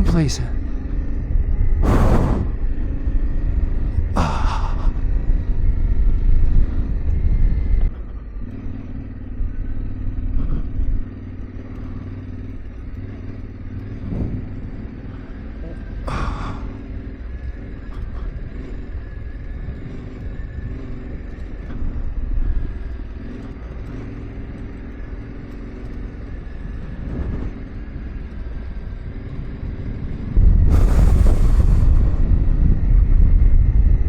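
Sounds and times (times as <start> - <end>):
motorcycle engine at low revs: 0.0 - 34.0
loud rushing noise: 1.8 - 3.2, 30.4 - 33.8.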